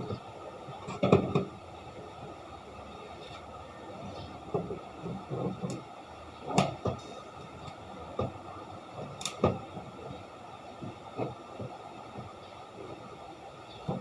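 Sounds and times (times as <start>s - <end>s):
irregular knocks and clicks: 6.5s - 10.2s, 10.8s - 12.4s.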